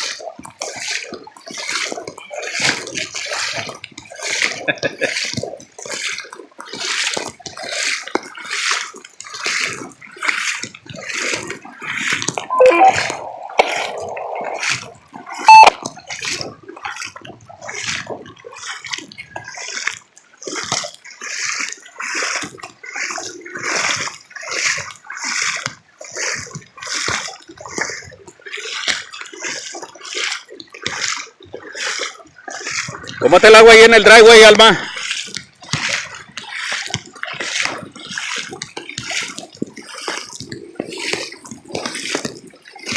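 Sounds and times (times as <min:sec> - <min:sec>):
water sloshing and splashing: 0:00.0 - 0:42.9
brief tone: 0:12.5 - 0:15.8.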